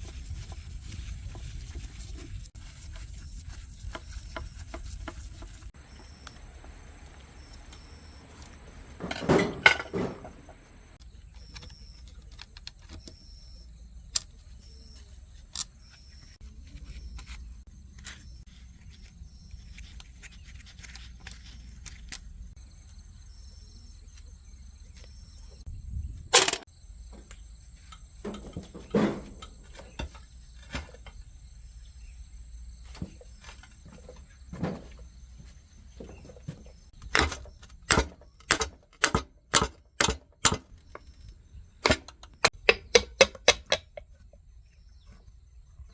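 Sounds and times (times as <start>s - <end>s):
clicks and knocks: 7.6s - 10.8s, 26.3s - 26.7s, 37.0s - 41.2s, 41.8s - 44.3s
quick regular knocks: 37.0s - 44.2s.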